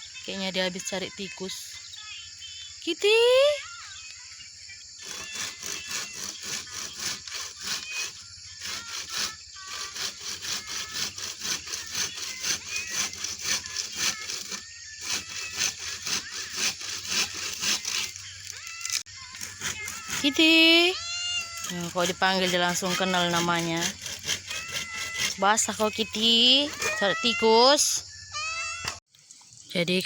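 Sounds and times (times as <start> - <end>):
hand saw cutting wood: 5.0 - 27.4.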